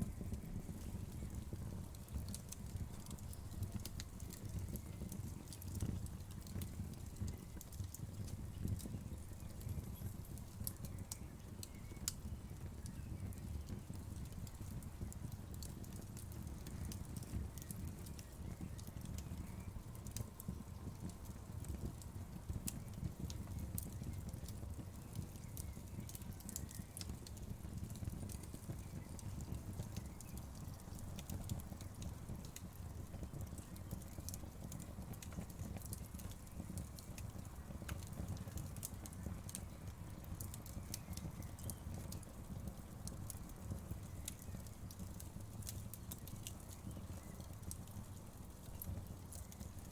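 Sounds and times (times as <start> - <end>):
low rumble of flames: 0.0 - 49.9
wood fire pops and crackles: 0.0 - 49.9.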